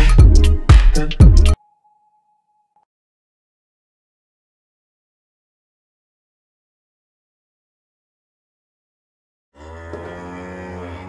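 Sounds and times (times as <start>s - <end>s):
cow mooing: 9.6s - 11.0s.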